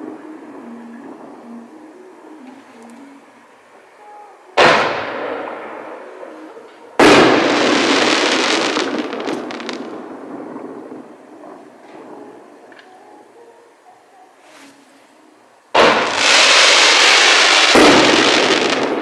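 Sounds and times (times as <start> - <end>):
firework shell bangs: 4.6 - 5.9, 15.8 - 19.0.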